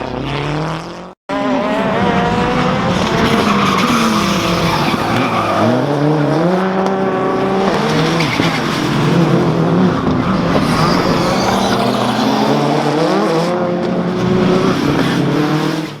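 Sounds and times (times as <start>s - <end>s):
rally car engine revving hard: 0.0s - 16.0s.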